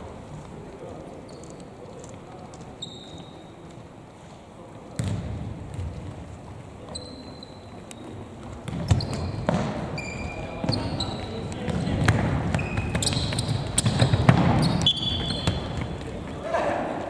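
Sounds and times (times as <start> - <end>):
gym background noise: 0.0 - 17.0
sneakers squeaking on court: 1.2 - 1.6, 2.6 - 3.5, 5.0 - 6.0, 6.8 - 16.4
basketball bouncing: 5.0 - 6.2, 8.6 - 9.9, 10.6 - 16.4.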